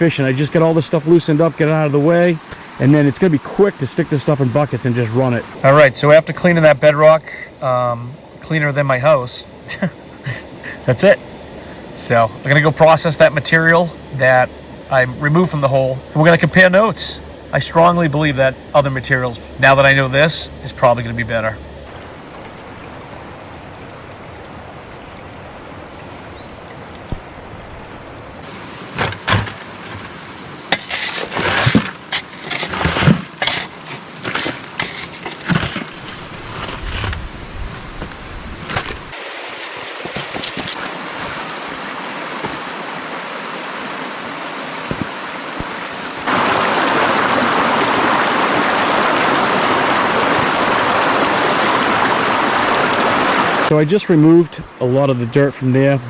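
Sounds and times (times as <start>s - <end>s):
stream water rushing: 0.0s - 36.5s, 38.0s - 56.0s
knocks and scrapes: 28.9s - 37.3s, 38.0s - 41.5s.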